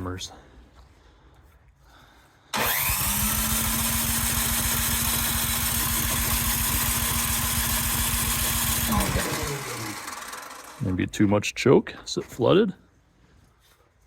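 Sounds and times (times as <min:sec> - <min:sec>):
starter cranking engine: 0:02.6 - 0:11.1.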